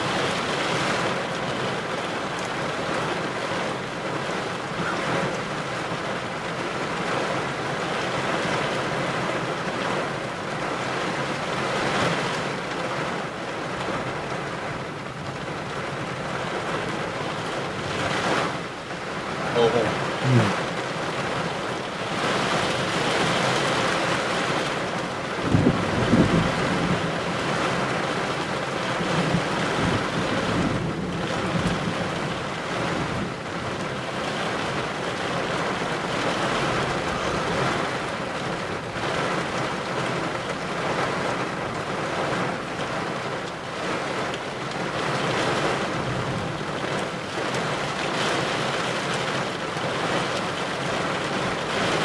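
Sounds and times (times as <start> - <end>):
wind and rain rushing: 0.0 - 52.0
low thunder rumble: 25.3 - 27.8, 29.0 - 33.8.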